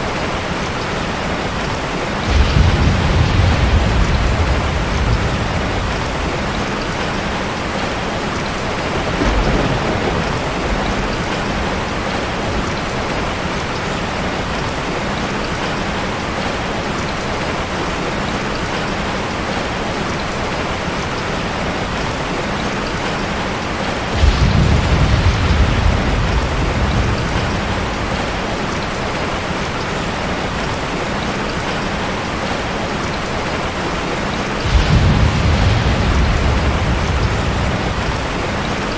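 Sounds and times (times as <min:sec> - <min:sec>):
thunder rumbling: 0:00.0 - 0:14.8, 0:23.6 - 0:30.8, 0:34.1 - 0:38.9
heavy rain: 0:00.0 - 0:38.9.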